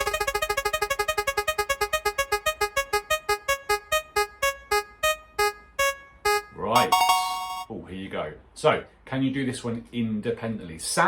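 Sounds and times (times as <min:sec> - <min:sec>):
spinning wheel ticking: 0:00.0 - 0:07.6.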